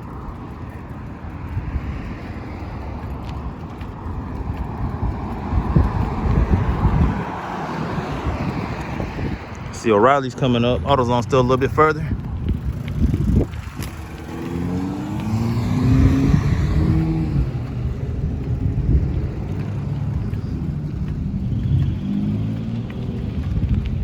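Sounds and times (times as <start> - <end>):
low road rumble: 0.0 - 24.0
vehicle engine passing: 0.2 - 24.0
car engine accelerating: 13.1 - 23.6.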